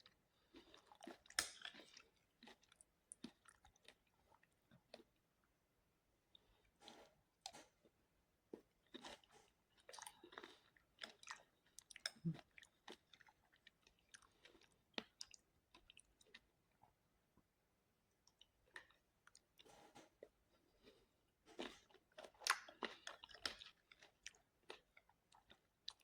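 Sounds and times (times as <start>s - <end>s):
crunchy chewing: 0.0s - 5.1s, 8.5s - 16.4s.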